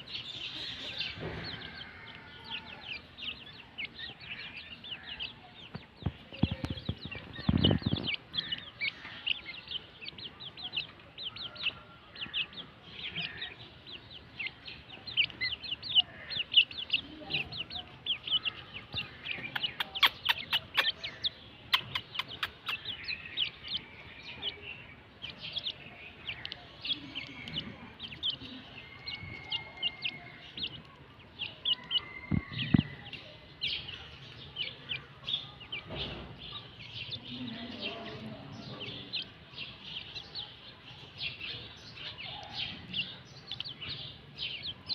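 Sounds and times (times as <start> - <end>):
chicks peeping: 0.0 - 44.9
sharp clicks: 21.8 - 23.0.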